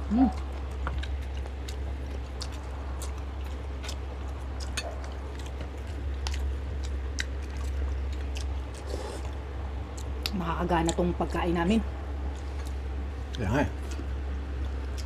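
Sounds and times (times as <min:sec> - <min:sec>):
chewing with wet mouth smacks: 0:00.0 - 0:11.1, 0:12.2 - 0:15.0
steady low hum: 0:00.0 - 0:15.0.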